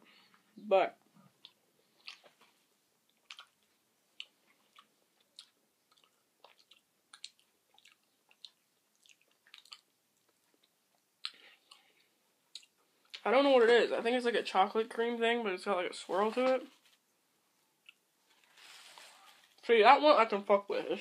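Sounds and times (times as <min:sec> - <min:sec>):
person chewing wetly: 0:01.3 - 0:13.2.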